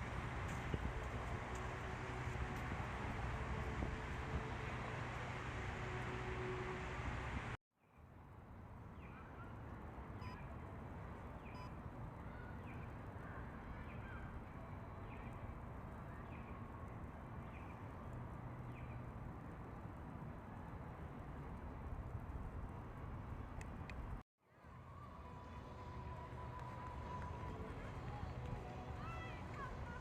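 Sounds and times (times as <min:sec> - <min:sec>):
distant traffic hum: 0:00.0 - 0:07.6.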